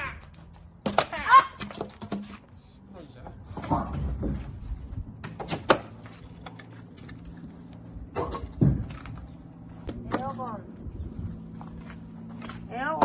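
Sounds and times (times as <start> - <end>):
sharp knocks and thuds: 8.1 - 9.2.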